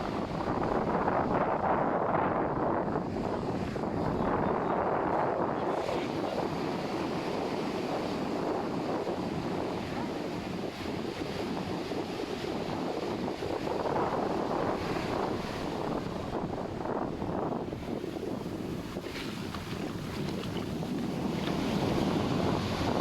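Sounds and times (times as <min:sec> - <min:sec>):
wind on microphone: 0:00.0 - 0:23.0
ocean surf washing in: 0:02.3 - 0:23.0.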